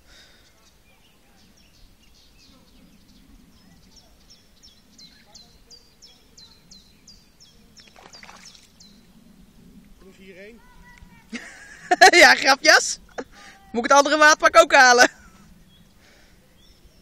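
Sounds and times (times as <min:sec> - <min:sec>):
small bird chirping: 0:00.4 - 0:09.1.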